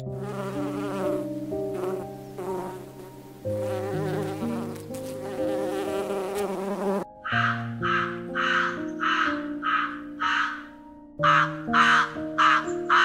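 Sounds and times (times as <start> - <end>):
flying insect buzzing: 0.0 - 7.4
crow cawing: 7.2 - 13.0.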